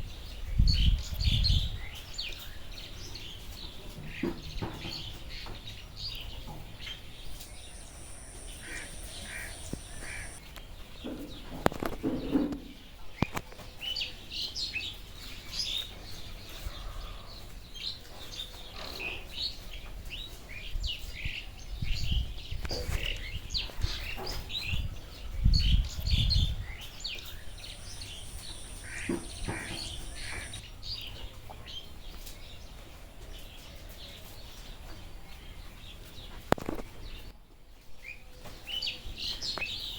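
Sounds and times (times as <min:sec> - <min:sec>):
birds chirping and calling: 0:07.0 - 0:10.4, 0:27.2 - 0:30.6
high thin buzz: 0:07.1 - 0:10.4, 0:27.0 - 0:30.6.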